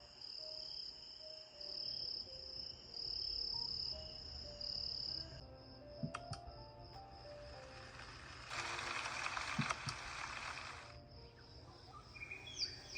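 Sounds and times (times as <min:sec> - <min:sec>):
recorded cricket chirping: 0:00.0 - 0:12.9
sharp clicks: 0:06.0 - 0:06.5, 0:08.5 - 0:10.9.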